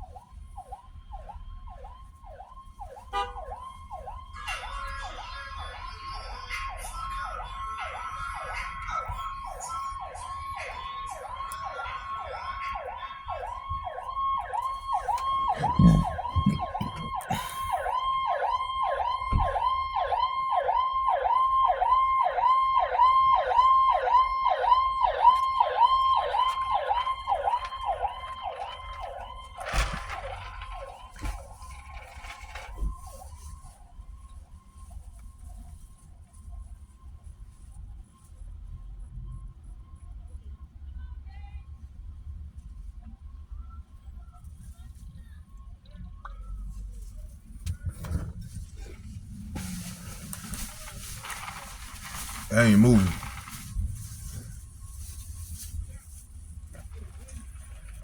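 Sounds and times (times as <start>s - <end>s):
police siren yelping: 0.0s - 33.5s.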